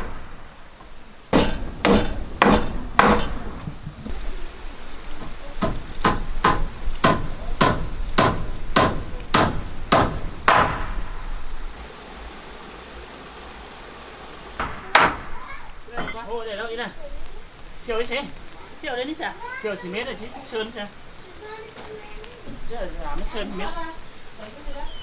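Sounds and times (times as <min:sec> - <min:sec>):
hammer blows on wood: 0:01.3 - 0:04.1, 0:05.5 - 0:16.1.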